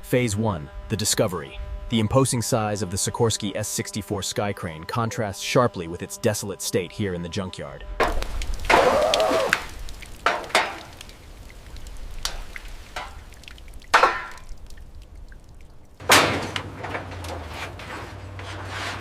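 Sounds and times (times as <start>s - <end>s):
low steady hum: 0.0s - 5.4s, 6.8s - 19.0s.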